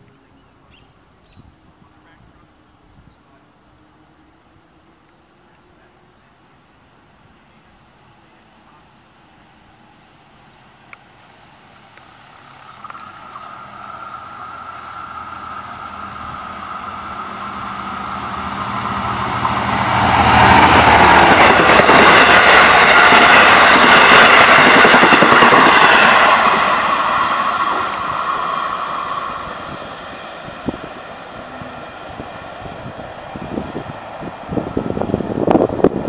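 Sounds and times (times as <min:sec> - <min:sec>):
thin steady whine: 0:00.0 - 0:19.7, 0:26.1 - 0:33.6
train passing at speed: 0:00.0 - 0:36.0.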